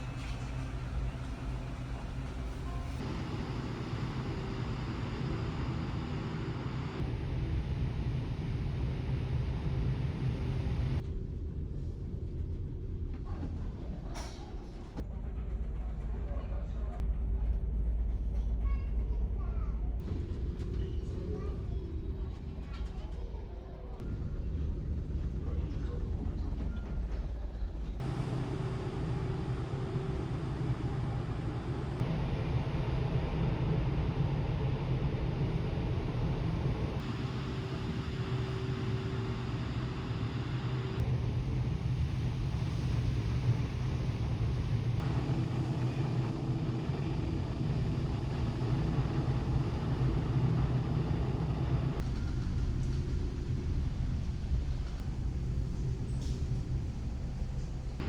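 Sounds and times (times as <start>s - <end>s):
ship engines rumbling: 0.0s - 11.0s, 27.4s - 58.0s.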